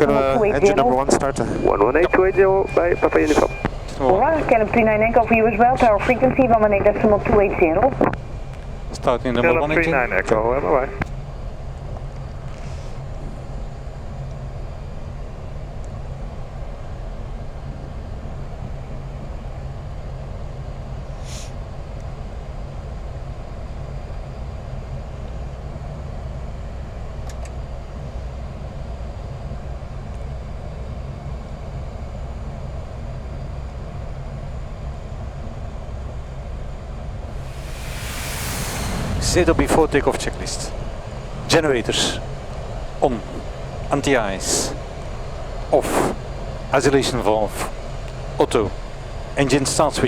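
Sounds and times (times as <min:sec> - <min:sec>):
aircraft engine rumble: 0:00.0 - 0:14.1, 0:37.1 - 0:49.8.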